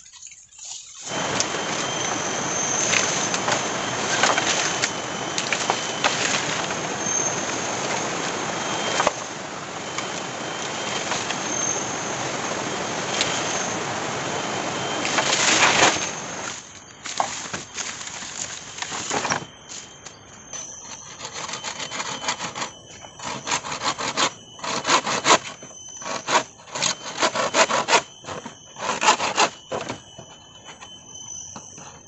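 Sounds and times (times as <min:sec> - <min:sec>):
thin high tone: 0:00.0 - 0:32.0
heavy rain: 0:01.1 - 0:16.5.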